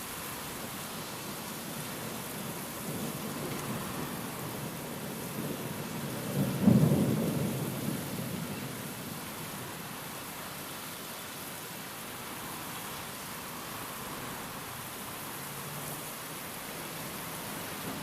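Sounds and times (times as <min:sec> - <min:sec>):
steady rain: 0:00.0 - 0:18.0
thunder clap and rumble: 0:02.8 - 0:09.1.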